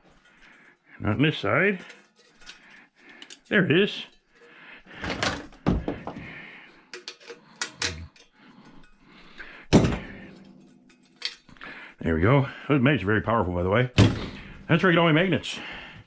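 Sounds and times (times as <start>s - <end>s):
metal knocks and clanks: 4.9s - 8.2s, 9.7s - 10.6s.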